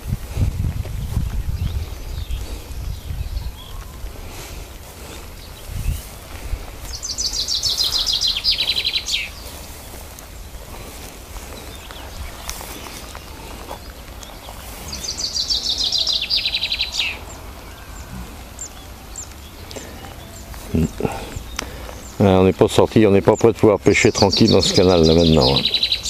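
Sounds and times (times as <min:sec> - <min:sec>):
songbird trilling: 0:05.4 - 0:10.5, 0:11.5 - 0:26.0.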